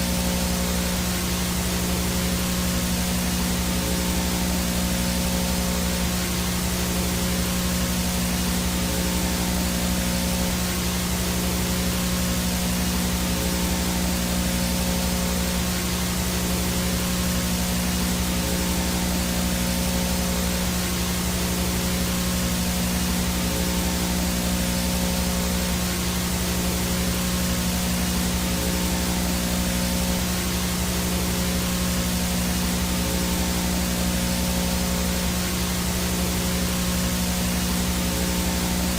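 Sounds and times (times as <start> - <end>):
static hiss: 0.0 - 38.9.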